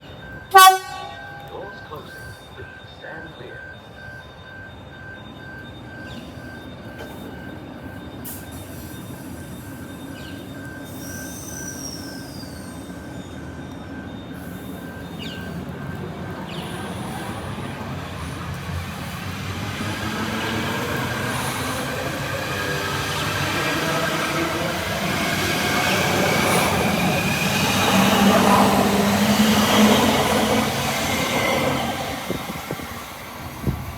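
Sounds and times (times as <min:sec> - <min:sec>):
electric train accelerating: 0:00.0 - 0:33.9
brief high squeal: 0:10.8 - 0:13.3.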